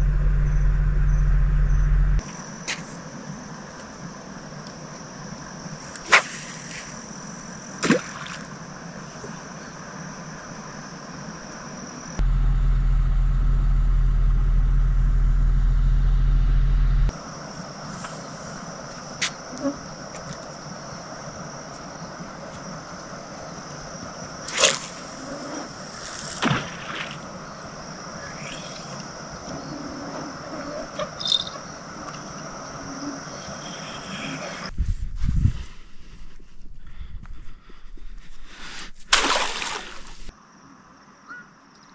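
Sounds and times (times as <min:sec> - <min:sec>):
loud low rumble: 0:00.0 - 0:02.2, 0:12.2 - 0:17.1
night insects droning: 0:00.0 - 0:41.9.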